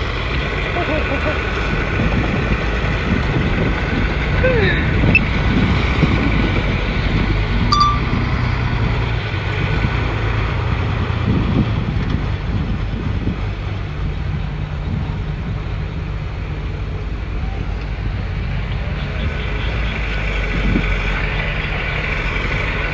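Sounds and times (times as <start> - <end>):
bulldozer diesel engine droning: 0.0 - 22.9
high chirp: 7.7 - 8.3.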